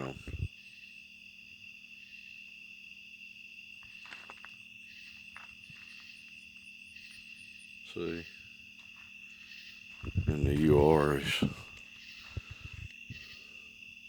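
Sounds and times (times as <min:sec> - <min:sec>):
faint low hum: 0:00.0 - 0:00.6, 0:03.7 - 0:13.8
crickets trilling: 0:00.0 - 0:14.0.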